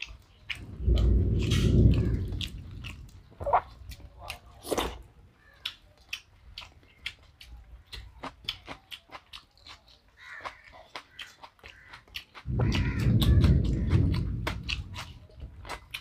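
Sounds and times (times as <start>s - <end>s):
chewing and lip-smacking: 0.0s - 16.0s
loud low rumble: 0.5s - 4.1s, 12.5s - 15.7s.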